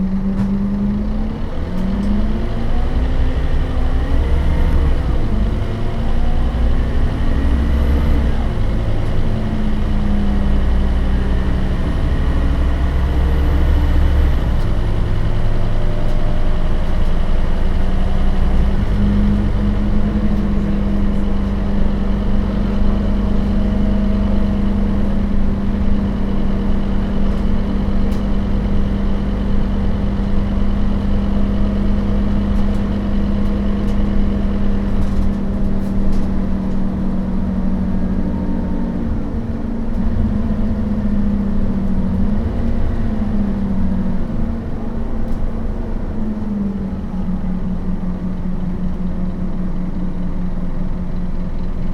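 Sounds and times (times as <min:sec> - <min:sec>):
bus diesel engine running: 0:00.0 - 0:51.9.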